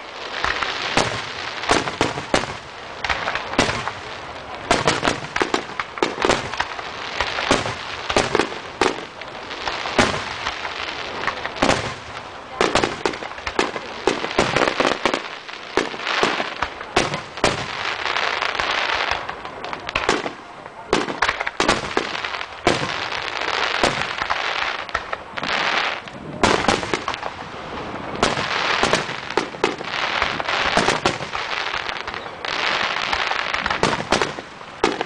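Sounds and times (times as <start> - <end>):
fireworks bangs: 0.0 - 35.0
fireworks crackle: 0.0 - 35.0.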